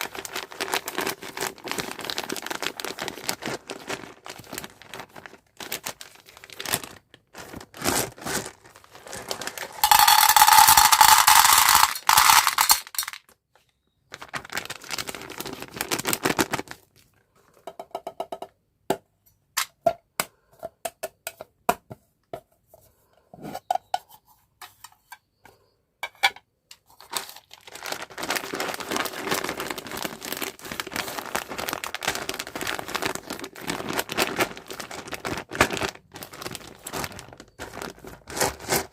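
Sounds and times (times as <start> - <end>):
plastic packaging crinkling: 0.0 - 13.4, 14.0 - 17.2, 27.0 - 38.9.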